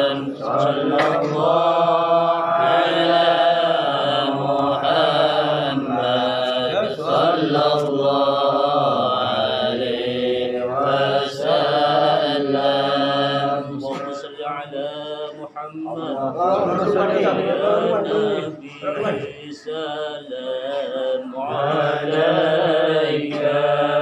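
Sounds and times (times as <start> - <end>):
voices chanting: 0.0 - 24.0.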